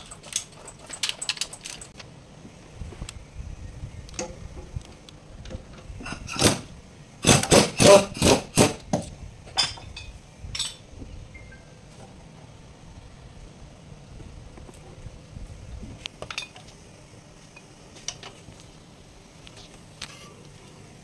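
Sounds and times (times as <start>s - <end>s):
metal tools clinking on metal: 0.0s - 2.0s, 9.5s - 10.9s, 16.2s - 16.7s.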